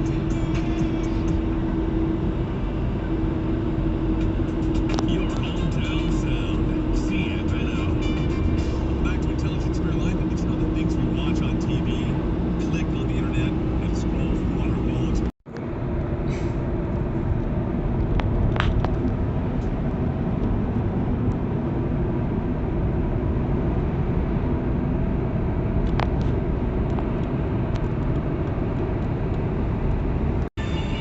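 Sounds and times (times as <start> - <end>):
car driving rumble: 0.0 - 31.0.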